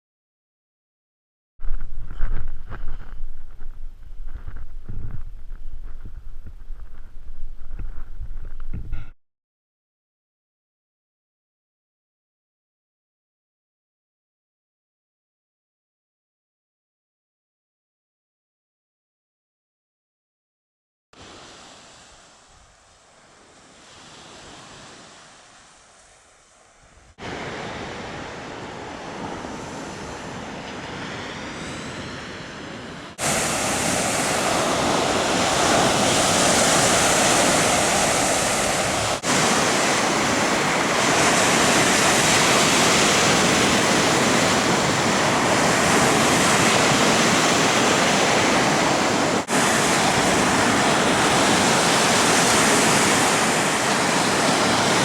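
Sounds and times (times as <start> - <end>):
rushing water: 33.2 - 55.0.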